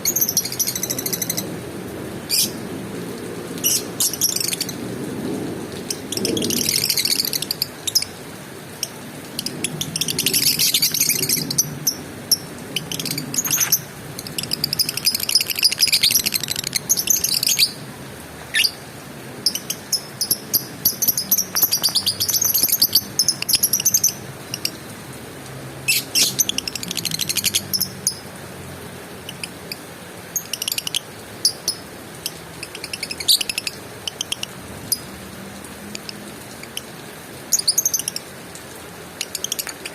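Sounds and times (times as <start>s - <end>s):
lovebird chattering trills: 12.8s - 17.8s, 19.5s - 24.8s.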